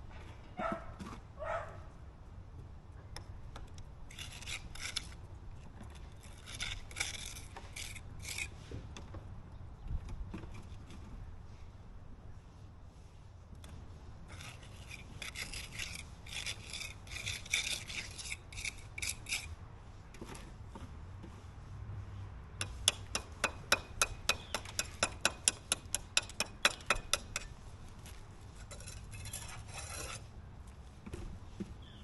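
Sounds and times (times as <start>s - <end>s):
hand tool scraping hard surface: 14.3s - 19.5s, 28.5s - 30.3s.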